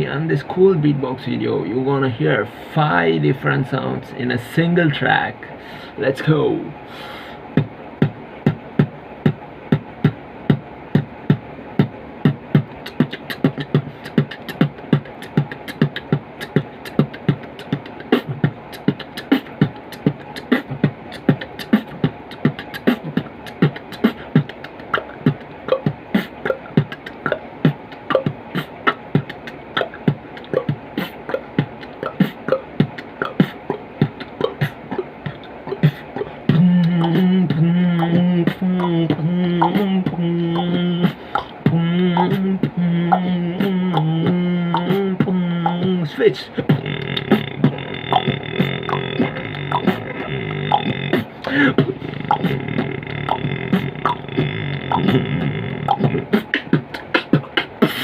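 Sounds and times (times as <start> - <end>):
beatboxing beat: 0.0 - 58.0
voice bass note: 36.5 - 41.1, 41.7 - 56.4.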